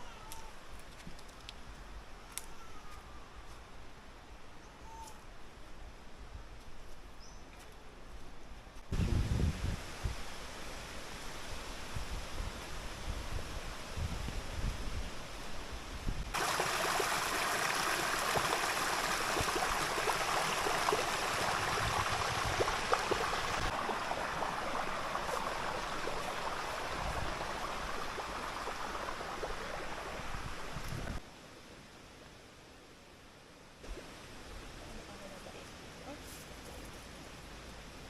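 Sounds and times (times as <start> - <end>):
river rushing over rocks: 16.4 - 30.9.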